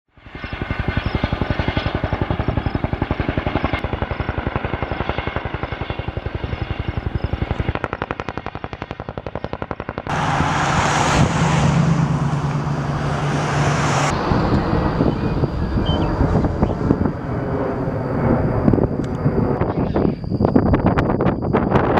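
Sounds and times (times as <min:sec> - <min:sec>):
helicopter rotor beating: 0:00.2 - 0:21.9
noisy engine with low hum: 0:10.1 - 0:21.9.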